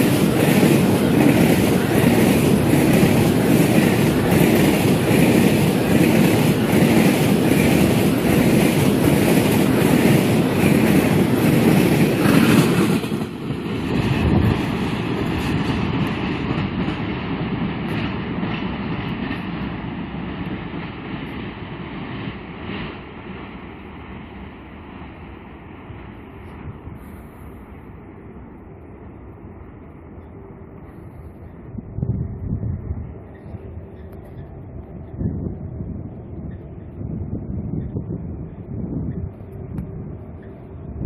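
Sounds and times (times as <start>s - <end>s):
train wheels clacking: 0.0s - 21.7s, 33.0s - 35.2s
train rumbling: 0.0s - 41.0s.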